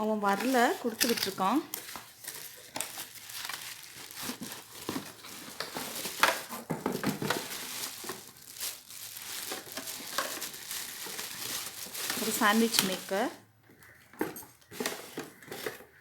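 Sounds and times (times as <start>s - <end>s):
packaging crinkling and crackling: 0.0s - 16.0s.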